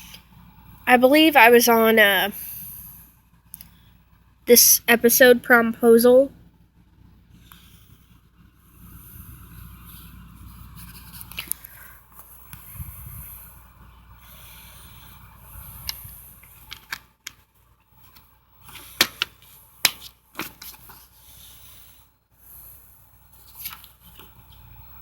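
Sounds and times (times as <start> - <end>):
plastic case clicks: 19.0 - 20.6.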